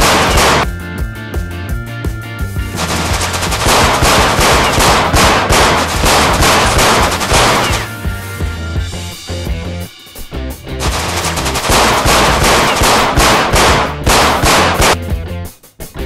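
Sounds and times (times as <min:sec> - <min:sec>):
rapid machine-gun fire: 0:00.0 - 0:00.7, 0:02.8 - 0:07.9, 0:10.8 - 0:15.0
background music with bass line: 0:00.0 - 0:16.0.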